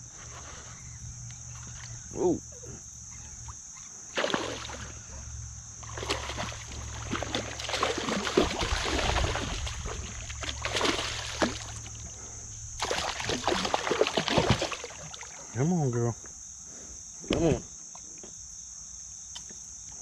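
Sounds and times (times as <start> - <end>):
water splashing and sloshing: 3.4 - 15.5.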